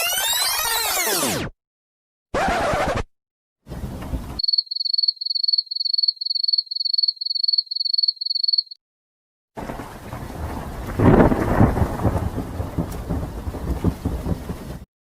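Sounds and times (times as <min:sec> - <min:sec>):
cricket chirping: 0:04.4 - 0:08.8
rain and thunder: 0:09.6 - 0:14.9.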